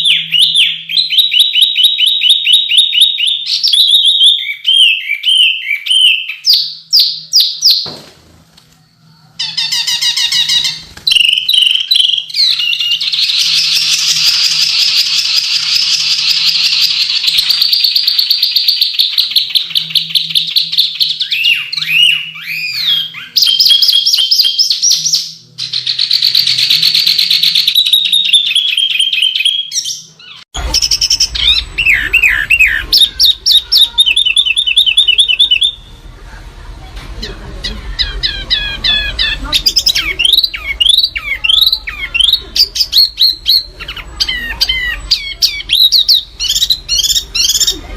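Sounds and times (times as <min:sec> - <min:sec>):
low rumbling noise: 0:30.6 - 0:39.8.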